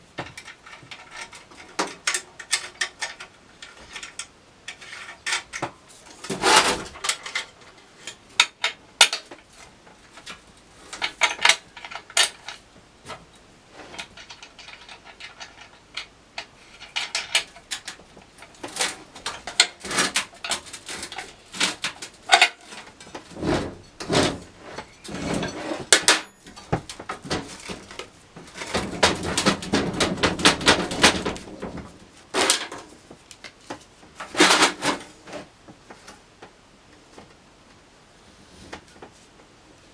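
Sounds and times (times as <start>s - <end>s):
metal parts and tools clinking: 0.2s - 9.4s, 13.9s - 31.4s
metal parts rattling: 0.2s - 9.4s, 10.2s - 12.6s, 13.9s - 32.9s.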